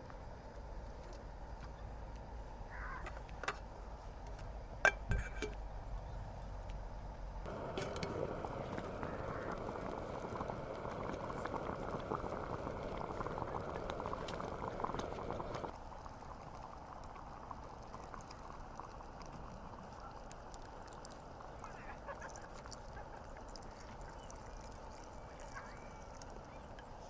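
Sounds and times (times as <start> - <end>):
food frying sizzle: 7.5 - 26.6.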